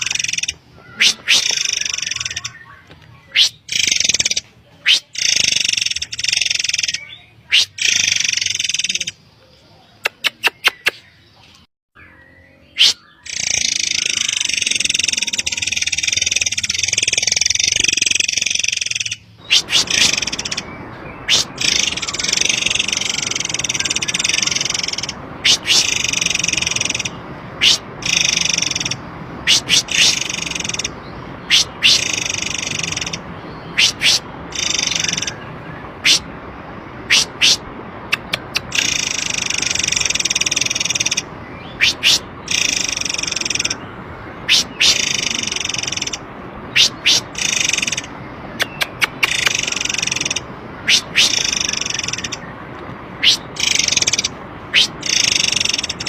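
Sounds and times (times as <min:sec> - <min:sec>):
bird high-pitched chattering: 0:00.0 - 0:09.2, 0:10.0 - 0:11.2, 0:12.7 - 0:36.3, 0:37.0 - 0:43.8, 0:44.4 - 0:52.4, 0:53.2 - 0:56.0
sharp bird call notes: 0:00.0 - 0:09.2, 0:12.6 - 0:36.3, 0:37.0 - 0:52.5, 0:53.2 - 0:56.0
low rushing noise: 0:14.0 - 0:56.0.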